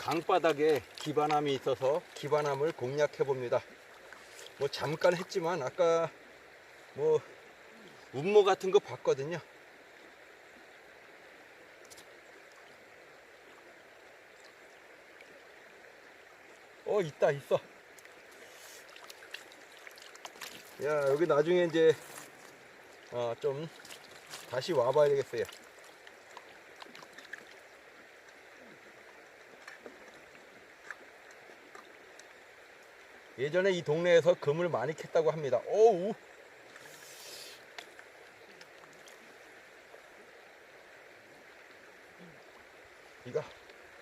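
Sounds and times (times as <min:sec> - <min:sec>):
flowing river water: 0:00.0 - 0:44.0
faint clicks: 0:11.8 - 0:12.6.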